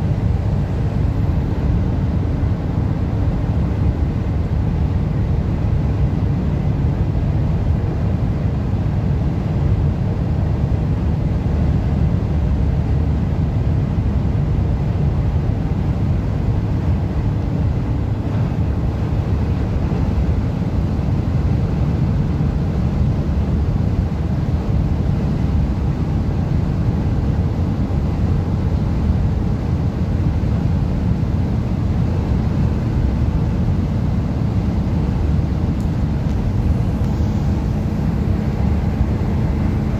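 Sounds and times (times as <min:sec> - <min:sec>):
strong wind: 0:00.0 - 0:39.9
car road noise: 0:34.4 - 0:39.9.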